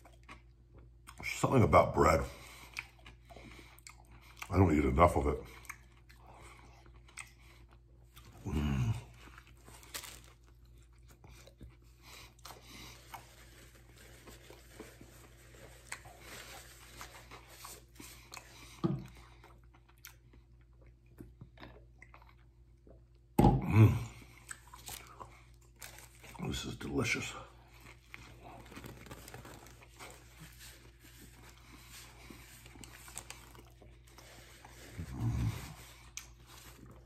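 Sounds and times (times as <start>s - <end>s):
man chewing and biting food: 0.0s - 1.4s, 2.4s - 26.5s, 27.5s - 37.0s.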